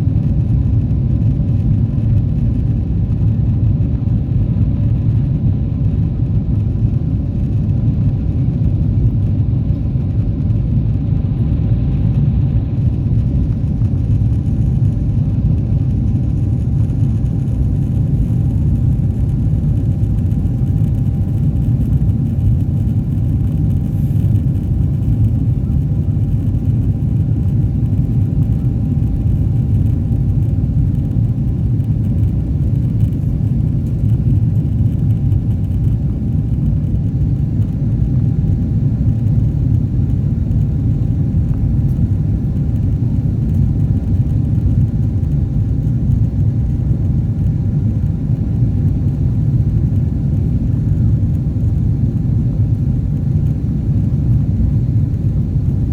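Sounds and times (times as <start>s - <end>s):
airliner cabin engine rumble: 0.0s - 55.9s
faint steady whine: 0.0s - 55.9s.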